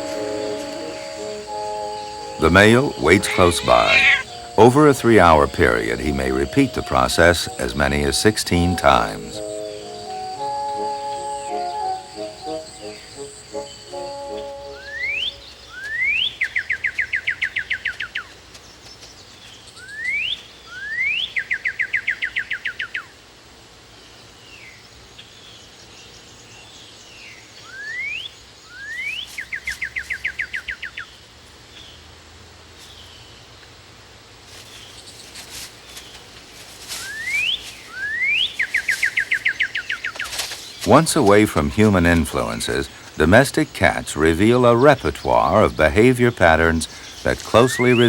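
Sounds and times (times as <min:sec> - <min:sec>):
songbird whistles and trill: 0:08.7 - 0:18.3, 0:19.7 - 0:23.1, 0:27.6 - 0:31.0, 0:37.0 - 0:41.1, 0:46.8 - 0:48.0.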